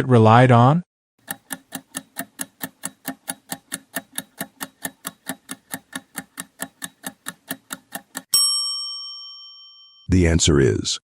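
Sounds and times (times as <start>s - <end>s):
clock-like ticking: 1.2s - 8.3s.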